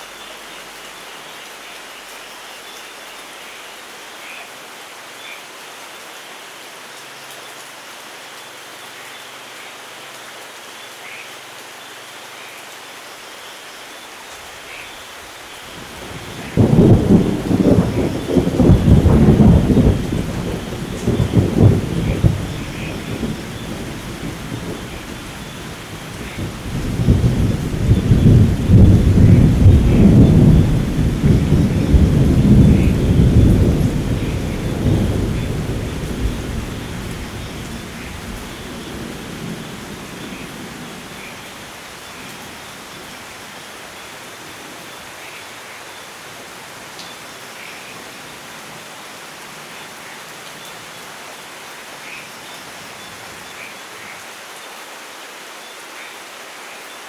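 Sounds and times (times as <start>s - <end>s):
steady rainfall: 0.0s - 57.0s
rolling thunder: 15.8s - 41.5s.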